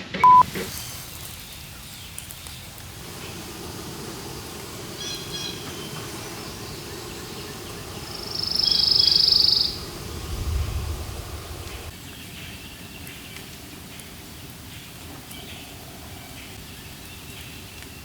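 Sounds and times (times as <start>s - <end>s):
high whistled bird notes: 0.2s - 11.9s
low rumble: 2.8s - 11.9s.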